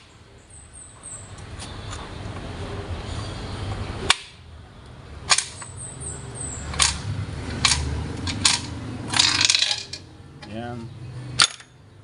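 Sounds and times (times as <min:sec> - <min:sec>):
metallic clicks and knocks: 0:06.7 - 0:10.6.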